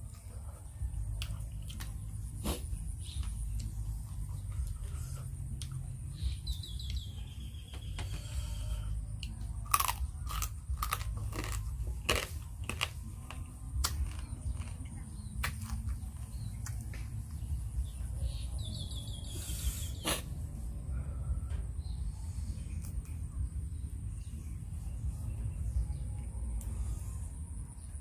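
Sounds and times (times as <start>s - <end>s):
crab shell crunching: 9.3s - 16.0s.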